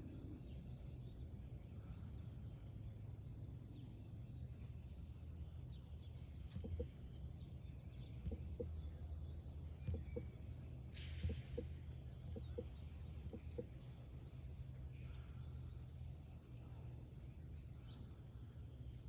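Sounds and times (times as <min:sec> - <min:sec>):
low steady rumble: 0:00.0 - 0:19.0
small birds chirping: 0:00.0 - 0:19.0.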